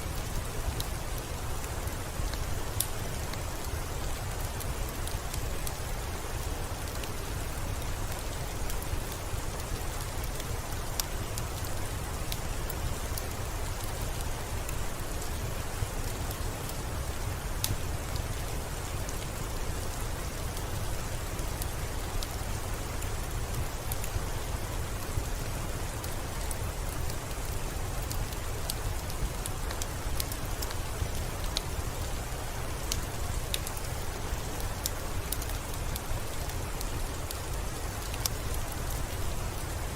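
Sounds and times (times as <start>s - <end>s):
steady rainfall: 0.0s - 39.9s
raindrop ticks: 17.5s - 39.8s.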